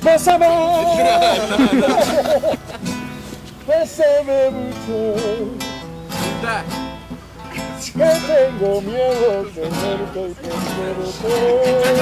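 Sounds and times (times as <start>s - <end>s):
man singing with vibrato: 0.0s - 3.0s, 3.6s - 6.8s, 7.5s - 12.0s
acoustic guitar strumming: 0.0s - 12.0s.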